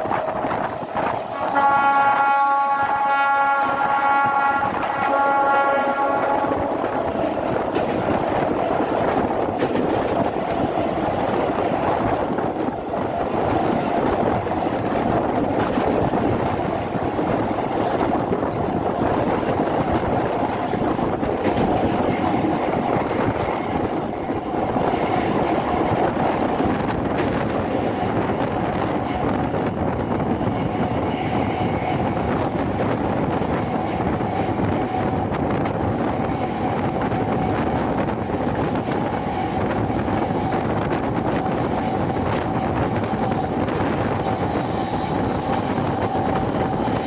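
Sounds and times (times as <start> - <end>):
train wheels rumbling on bridge: 0.0 - 47.0
train horn: 1.2 - 7.1.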